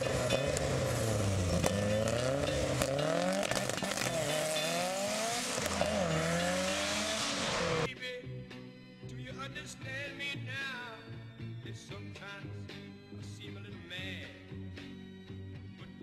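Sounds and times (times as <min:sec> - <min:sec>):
car engine accelerating hard: 0:00.0 - 0:07.9.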